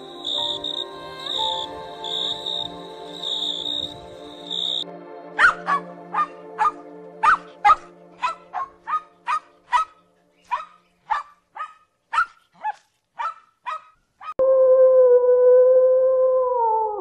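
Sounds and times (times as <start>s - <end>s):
small dog yapping: 11.1s - 14.4s.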